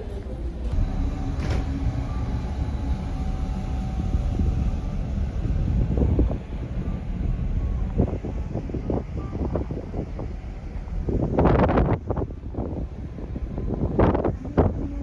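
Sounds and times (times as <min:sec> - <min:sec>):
ferry engine rumble: 0:00.0 - 0:15.0.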